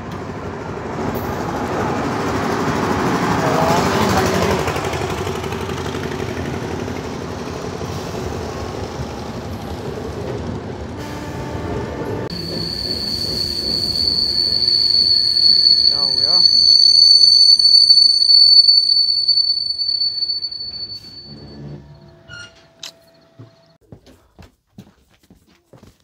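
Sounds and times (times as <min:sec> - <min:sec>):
train coach rumble: 0:00.0 - 0:23.8
high-pitched squeal: 0:12.3 - 0:22.9.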